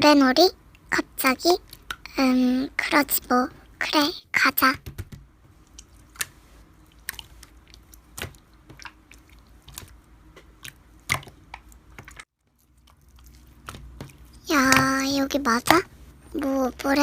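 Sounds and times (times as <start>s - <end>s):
slime squished by hand: 5.6s - 15.9s.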